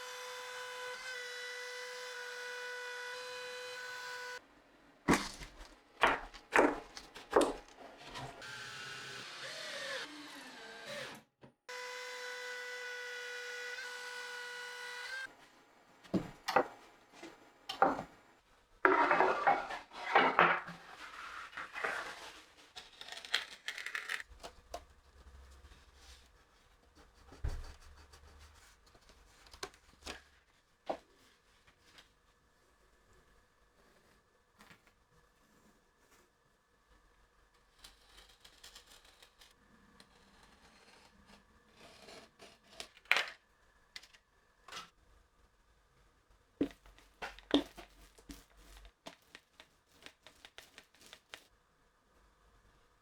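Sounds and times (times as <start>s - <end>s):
wood rubbing: 18.9s - 22.6s.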